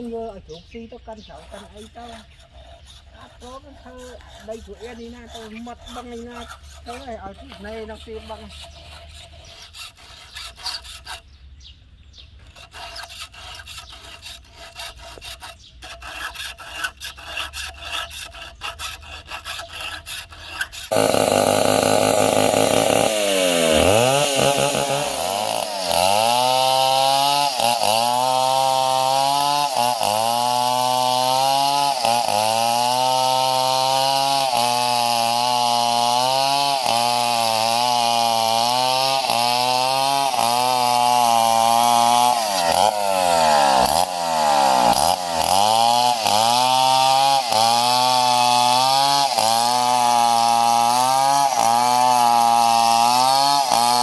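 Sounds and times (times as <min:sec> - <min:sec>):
irregular scraping and rubbing: 0:00.0 - 0:11.3, 0:12.4 - 0:21.0
chainsaw cutting wood: 0:01.0 - 0:11.3, 0:12.4 - 0:54.0.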